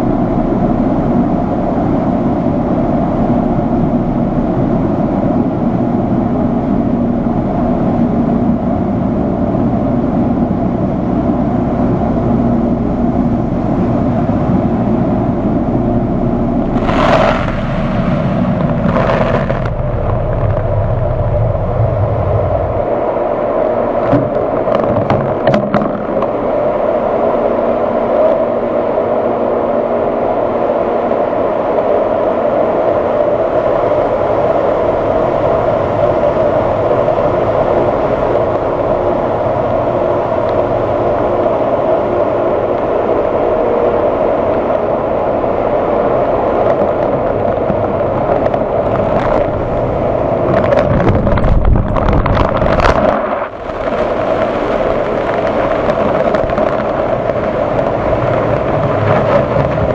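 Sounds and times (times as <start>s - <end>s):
low rumble: 11.7s - 27.5s, 44.8s - 59.9s.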